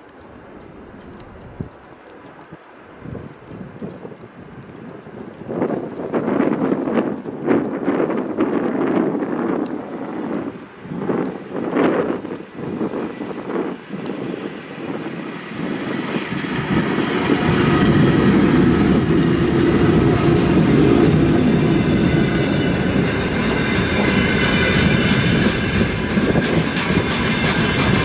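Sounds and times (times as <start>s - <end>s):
wheels clattering on rails: 5.6s - 28.0s
electric locomotive passing: 9.9s - 28.0s
freight wagons rumbling past: 14.8s - 28.0s.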